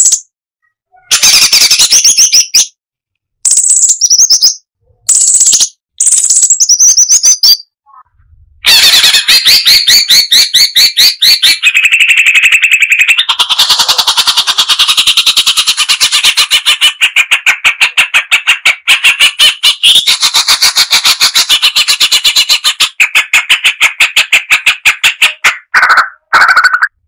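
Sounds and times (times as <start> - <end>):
bulbul song: 0.0 - 0.3, 3.4 - 8.1.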